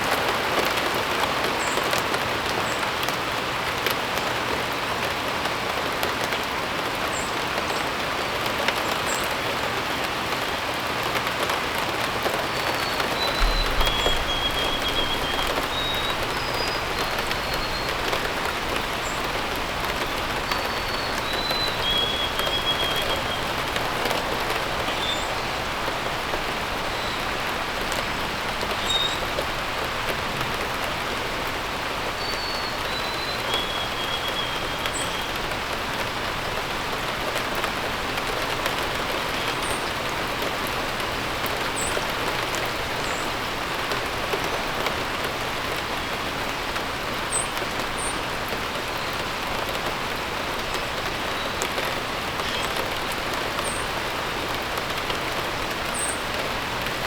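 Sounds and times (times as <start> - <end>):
steady rain: 0.0 - 57.0
bird whistles: 12.6 - 18.2, 20.5 - 23.5
high bird chirps: 12.8 - 19.3.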